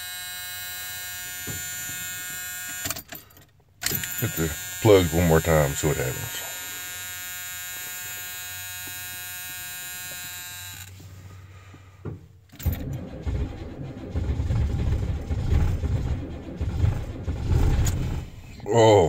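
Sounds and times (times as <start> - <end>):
steady electric buzz: 3.8 - 10.9
diesel engine cranking on starter: 12.5 - 18.7.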